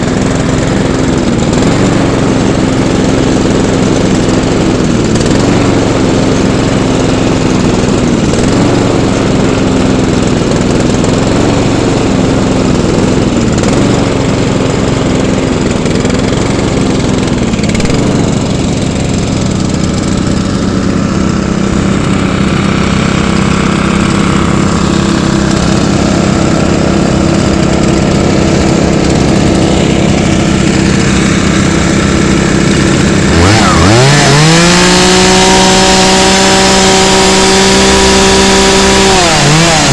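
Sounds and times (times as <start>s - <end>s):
small petrol engines running: 0.0s - 39.9s
engine revving sharply: 17.7s - 39.9s.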